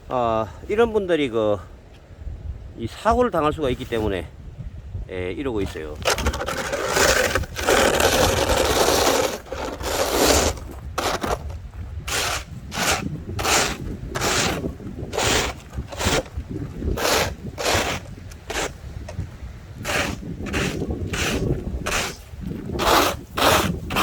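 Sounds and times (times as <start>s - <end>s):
scraping snow and ice: 5.6s - 24.0s.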